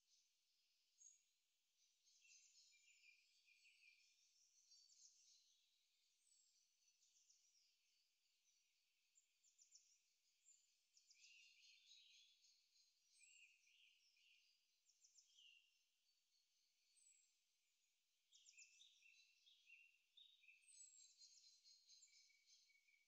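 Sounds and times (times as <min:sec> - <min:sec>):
faint high birdsong: 0:16.6 - 0:23.0.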